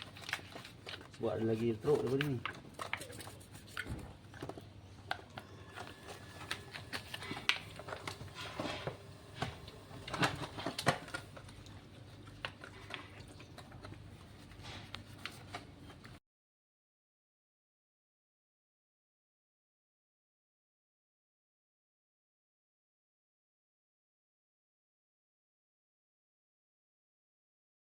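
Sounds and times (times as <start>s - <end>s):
faint background hum: 0.0s - 16.2s.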